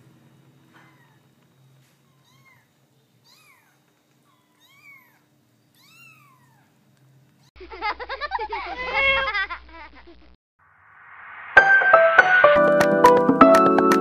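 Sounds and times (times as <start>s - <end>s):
kittens mewing: 0.7s - 6.8s, 8.7s - 9.4s.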